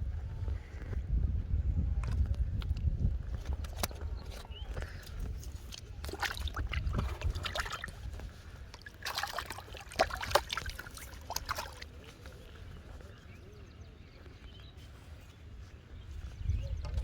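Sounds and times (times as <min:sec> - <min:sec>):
water splashing and trickling: 0:04.7 - 0:12.8.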